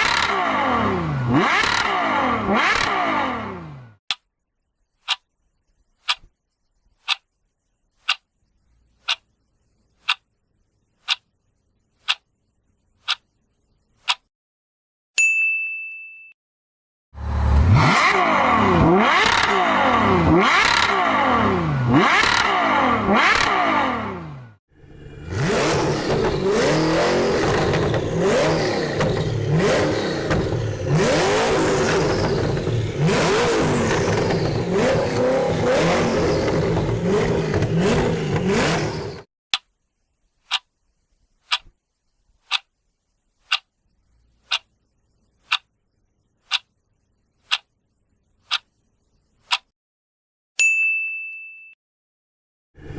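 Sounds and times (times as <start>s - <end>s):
car engine revving: 0.0s - 4.0s, 17.2s - 39.3s
clock-like ticking: 5.0s - 5.3s, 6.0s - 6.3s, 7.0s - 7.3s, 8.0s - 8.3s, 9.0s - 9.3s, 10.0s - 10.3s, 11.0s - 11.3s, 12.0s - 12.3s, 13.0s - 13.3s, 14.0s - 14.3s, 40.5s - 40.7s, 41.5s - 41.7s, 42.4s - 42.7s, 43.4s - 43.8s, 44.4s - 44.8s, 45.4s - 45.7s, 46.5s - 46.8s, 47.4s - 47.7s, 48.4s - 48.8s, 49.4s - 49.7s.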